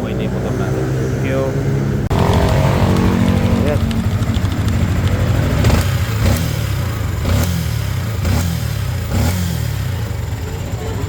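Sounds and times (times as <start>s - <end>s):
sharp clicks: 2.1s - 6.5s
motorcycle engine idling: 2.1s - 11.0s.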